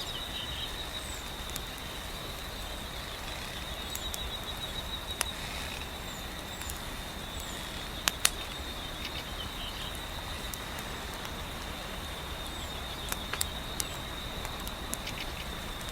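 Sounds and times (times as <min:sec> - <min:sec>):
gentle wind hiss: 0:00.0 - 0:15.9
wood fire crackling and popping: 0:00.3 - 0:15.9.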